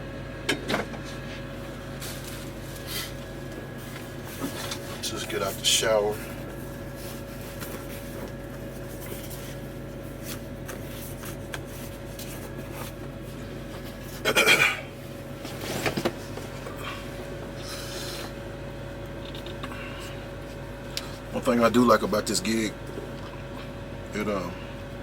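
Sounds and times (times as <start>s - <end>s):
rubbing and scraping handling noises: 1.2s - 14.3s.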